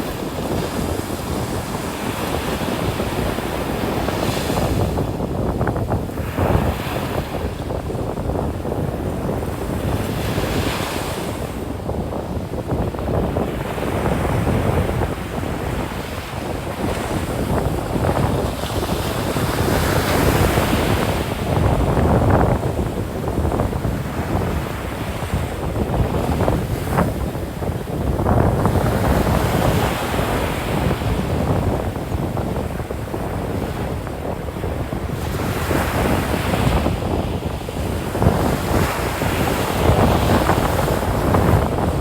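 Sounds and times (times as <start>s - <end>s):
wind buffeting microphone: 0.0s - 42.0s
surf breaking on sand beach: 13.2s - 42.0s.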